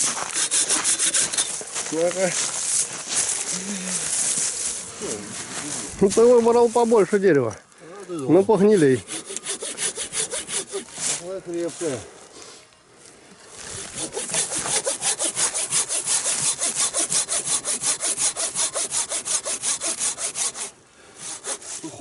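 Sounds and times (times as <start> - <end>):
handsaw cutting tree trunk: 0.0 - 1.5, 8.5 - 11.3, 13.6 - 22.0.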